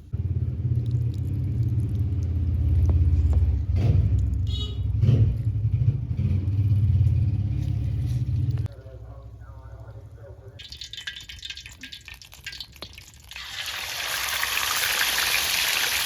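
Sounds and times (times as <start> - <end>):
low engine rumble: 0.0 - 10.8.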